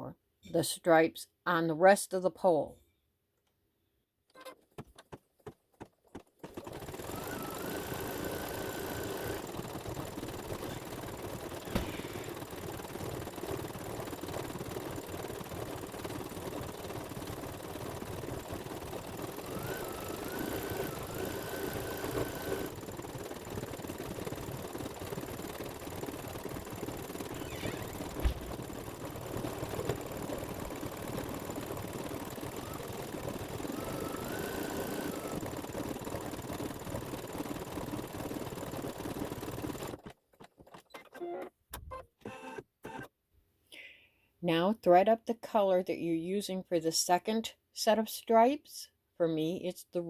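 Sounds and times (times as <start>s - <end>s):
embroidery machine clatter: 4.8s - 41.2s
rising machine whine: 6.5s - 39.4s.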